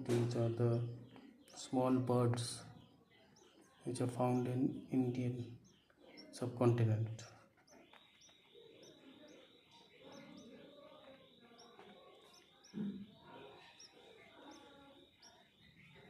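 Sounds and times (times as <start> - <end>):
high-pitched bird chirps: 2.6 - 16.0.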